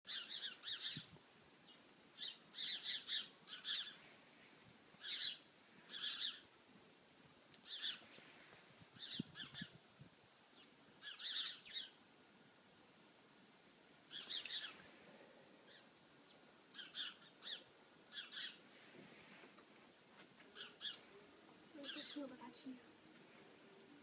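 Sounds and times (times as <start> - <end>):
birds calling: 0.1 - 4.1, 5.0 - 6.5, 7.6 - 8.3, 10.6 - 12.0, 14.1 - 14.9, 15.6 - 18.8, 20.4 - 24.0.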